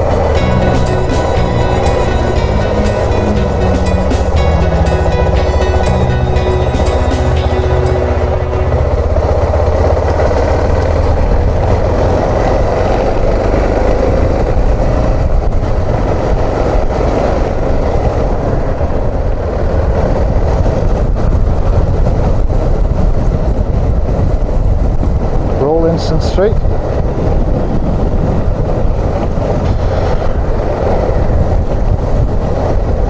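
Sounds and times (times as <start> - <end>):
road noise: 0.0 - 19.3.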